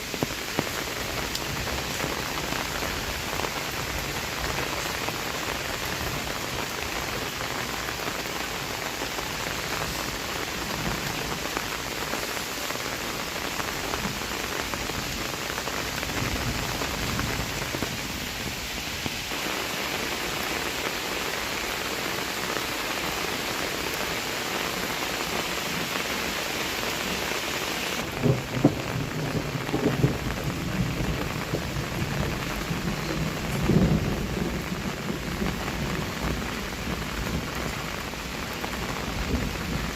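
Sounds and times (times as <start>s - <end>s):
heavy rain: 0.0s - 39.9s
thunder rumbling: 28.0s - 38.2s.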